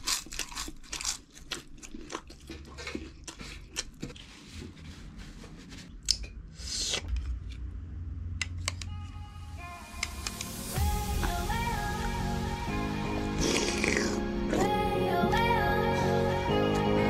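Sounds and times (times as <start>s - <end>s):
chewing with wet lip smacks: 0.0s - 4.2s.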